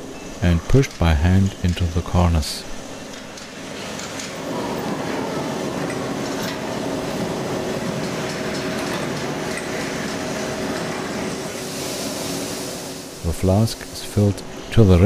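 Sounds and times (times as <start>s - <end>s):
faint machine hum: 0.0s - 15.0s
sand pouring hiss: 11.5s - 14.3s.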